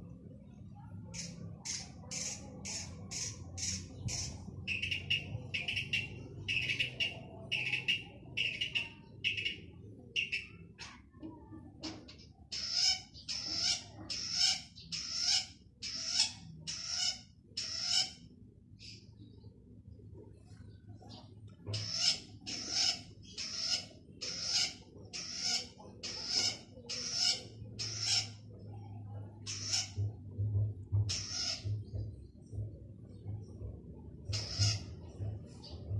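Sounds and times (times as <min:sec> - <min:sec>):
sharp bird ticks: 0:01.1 - 0:09.6.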